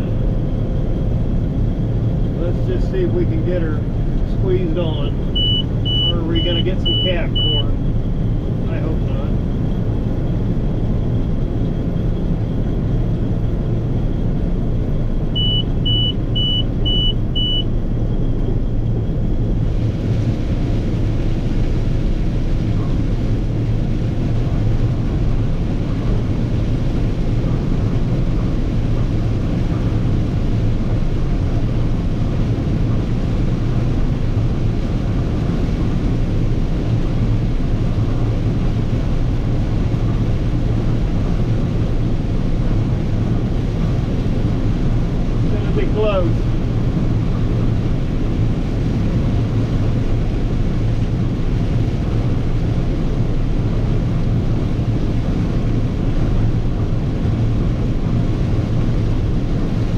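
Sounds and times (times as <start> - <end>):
combine harvester running: 0.0 - 59.9
short high warning beeps: 5.4 - 7.7, 15.4 - 17.7.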